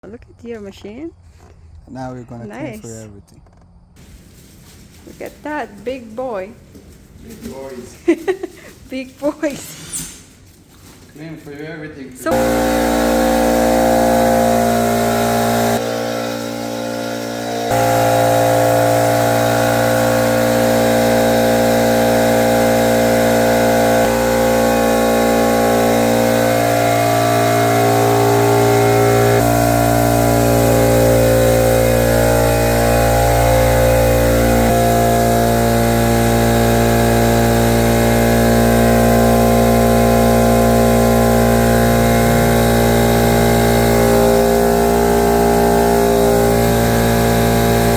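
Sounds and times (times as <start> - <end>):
motor humming: 10.2 - 47.9.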